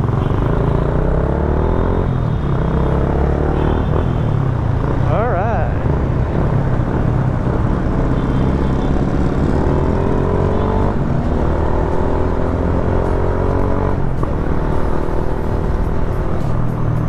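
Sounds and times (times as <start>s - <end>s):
motorcycle engine accelerating: 4.6s - 16.6s.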